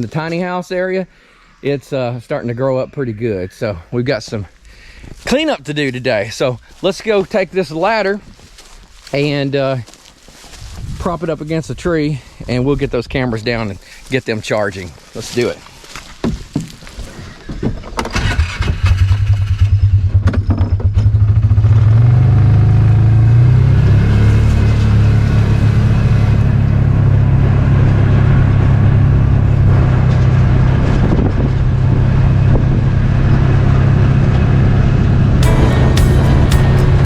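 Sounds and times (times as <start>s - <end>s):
vehicle engine starting and running: 18.0s - 37.0s.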